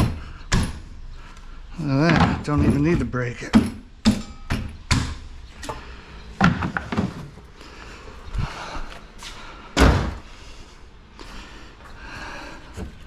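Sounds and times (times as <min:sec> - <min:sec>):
knocks and clacks of parts: 0:01.8 - 0:05.8, 0:06.4 - 0:07.4
loud thump: 0:09.8 - 0:10.2.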